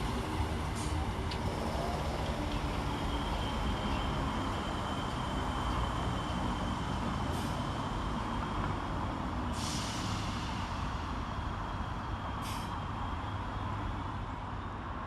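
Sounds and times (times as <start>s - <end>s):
air brake hisses: 0.7s - 1.0s, 7.3s - 7.7s, 9.5s - 11.1s, 12.4s - 12.8s.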